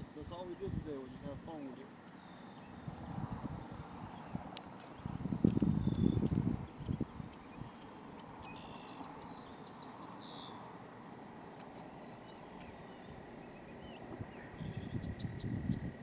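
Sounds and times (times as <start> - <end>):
low steady outdoor rush: 0.0 - 16.0
faint bird chirps: 3.5 - 10.6, 11.4 - 16.0.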